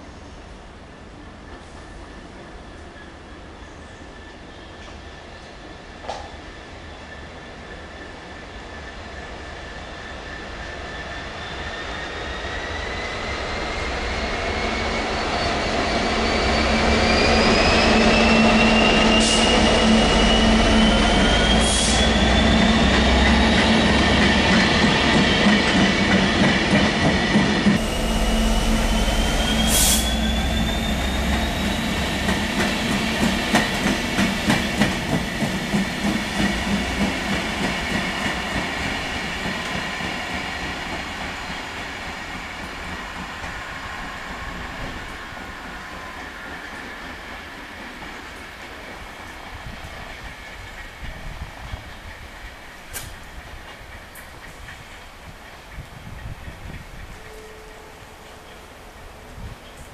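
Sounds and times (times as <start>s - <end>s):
diesel locomotive engine hum: 12.1s - 59.9s
high whine rising in pitch: 27.8s - 33.5s.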